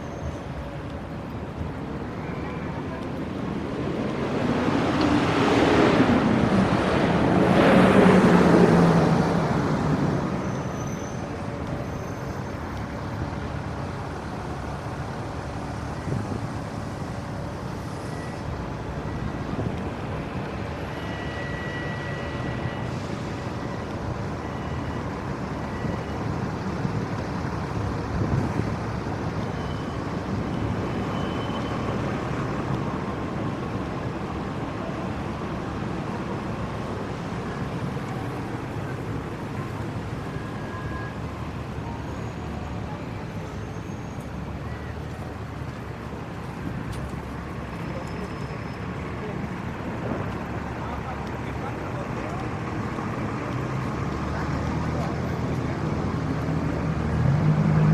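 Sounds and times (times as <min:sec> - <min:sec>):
steady traffic hum: 0:00.0 - 0:57.9
vehicle passing close by: 0:03.9 - 0:10.4, 0:53.7 - 0:57.9.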